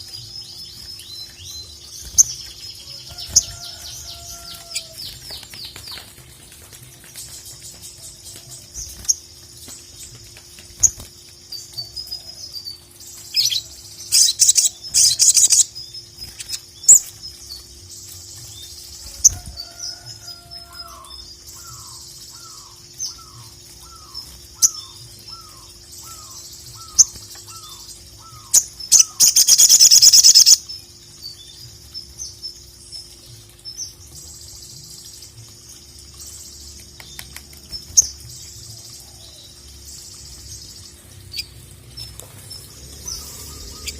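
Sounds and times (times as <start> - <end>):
bird chirping and calling: 0.0 - 6.2, 10.8 - 17.6, 18.4 - 30.7, 36.3 - 43.9.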